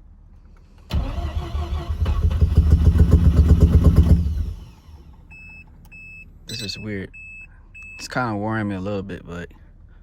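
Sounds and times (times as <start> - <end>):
rotary engine starting and running: 0.9 - 5.1.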